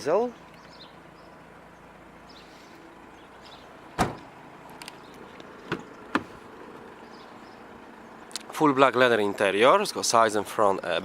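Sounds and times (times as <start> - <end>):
car door knocks: 4.0 - 4.3, 5.6 - 6.4
car panel thump: 4.0 - 4.3, 5.6 - 6.4.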